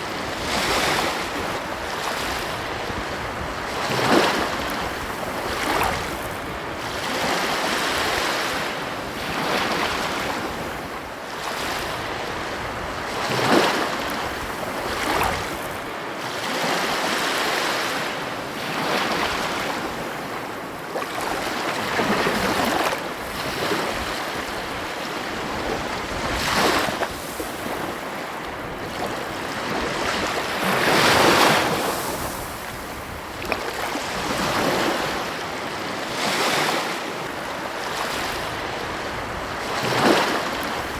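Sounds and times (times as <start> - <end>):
waves breaking on shore: 0.0 - 40.9.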